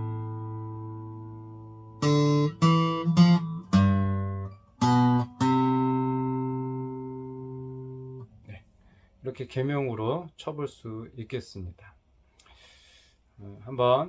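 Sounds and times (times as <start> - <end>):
acoustic guitar melody: 0.0 - 8.3.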